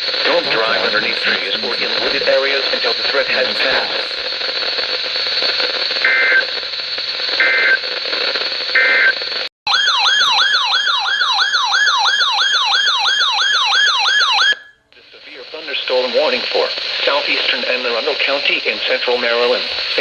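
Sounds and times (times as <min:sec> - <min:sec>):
radio hiss: 0:00.0 - 0:09.5, 0:15.0 - 0:20.0.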